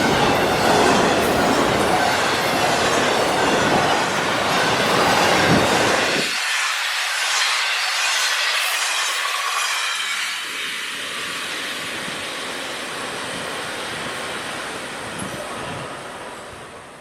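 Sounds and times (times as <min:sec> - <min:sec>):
freight train rolling on rails: 0:00.0 - 0:17.0.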